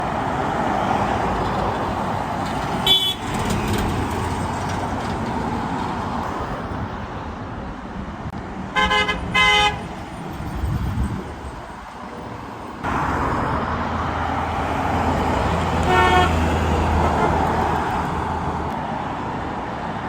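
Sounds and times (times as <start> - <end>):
road traffic passing: 0.0 - 20.0
vehicle horn blasts: 2.8 - 3.3, 8.8 - 9.8, 15.8 - 16.4.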